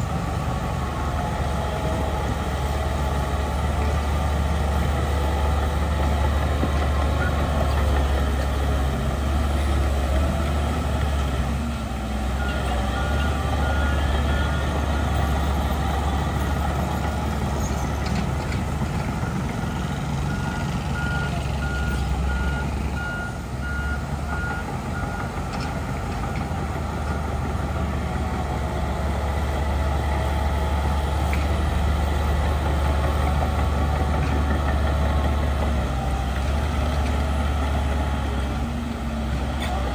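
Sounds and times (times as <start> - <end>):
heavy diesel engines running: 0.0 - 39.9
reversing alarm beeping: 19.2 - 25.3.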